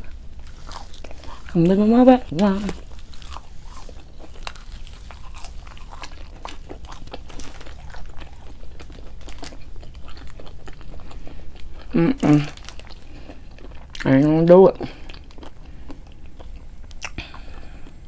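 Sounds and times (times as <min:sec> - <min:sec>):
close-up chewing and biting: 0:00.0 - 0:01.7, 0:02.3 - 0:14.1, 0:14.9 - 0:18.0
crisp food crunches: 0:00.3 - 0:01.7, 0:02.3 - 0:14.1.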